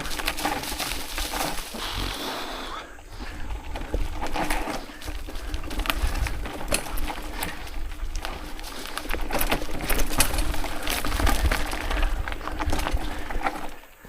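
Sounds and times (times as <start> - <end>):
mountain bike rattling on trail: 0.0 - 14.0
wind buffeting microphone: 3.0 - 13.7.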